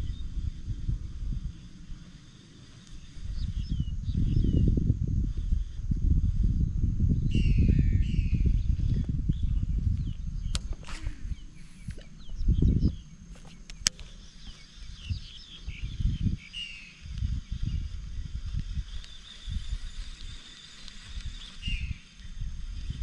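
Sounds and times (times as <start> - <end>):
low rumble on microphone: 0.0 - 23.0
small birds chirping: 0.0 - 23.0
sharp clicks: 10.4 - 11.1, 13.4 - 14.2.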